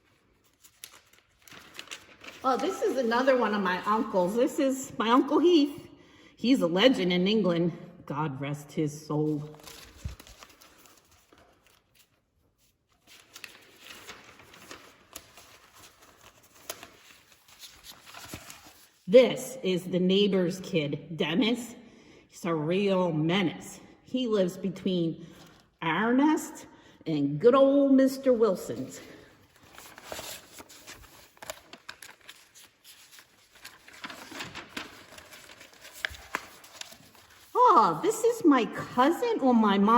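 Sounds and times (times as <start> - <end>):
cards rustling: 29.4 - 37.6.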